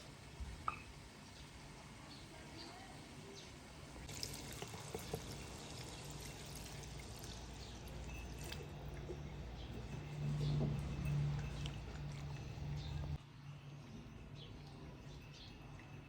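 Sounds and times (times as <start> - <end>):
water dripping: 4.1 - 10.0
water pouring: 4.1 - 10.0.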